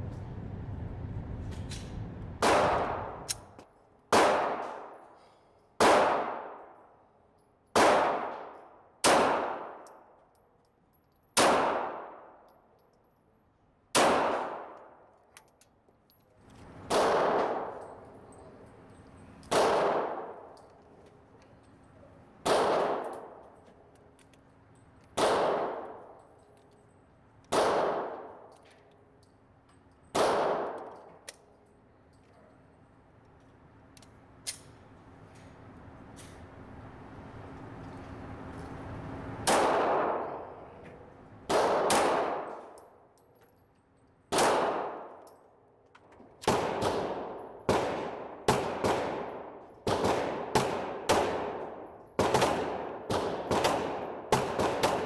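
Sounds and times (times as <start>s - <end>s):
pistol shots: 2.4s - 3.4s, 4.1s - 5.1s, 5.8s - 6.8s, 7.7s - 10.1s, 11.4s - 12.4s, 13.9s - 15.0s, 16.8s - 18.0s, 19.5s - 20.6s, 22.4s - 23.5s, 25.2s - 26.2s, 27.4s - 28.5s, 30.1s - 31.1s, 39.4s - 40.6s, 41.5s - 43.0s, 44.3s - 45.3s, 46.4s - 55.0s.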